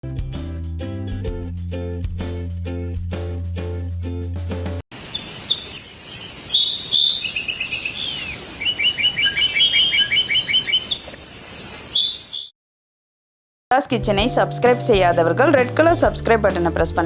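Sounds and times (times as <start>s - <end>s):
plucked-string tune with beat: 0.0s - 4.8s
birds chirping and whistling: 5.0s - 12.5s.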